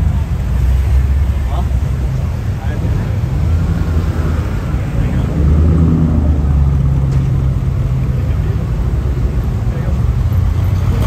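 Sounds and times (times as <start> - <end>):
cars cruising past: 0.0 - 11.0.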